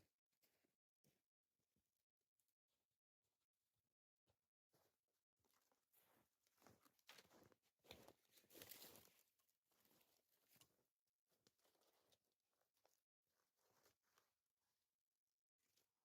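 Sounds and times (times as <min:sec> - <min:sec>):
faint rustling and crunching: 0:04.8 - 0:14.8.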